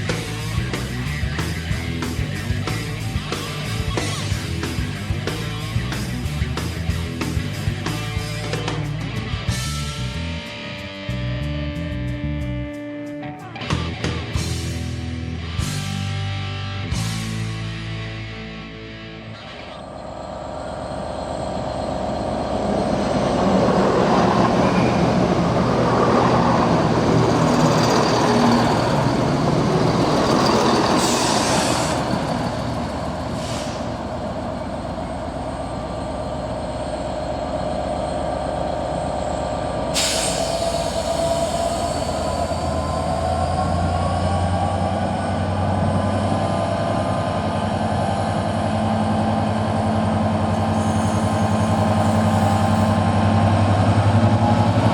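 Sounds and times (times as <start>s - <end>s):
locomotive engine hum: 0.0s - 10.5s, 17.0s - 54.9s
train wheel and rail noise: 0.0s - 10.6s, 19.4s - 54.9s
rising whine: 16.9s - 54.9s
high-pitched hisses or squeals: 20.4s - 43.8s, 50.5s - 53.1s.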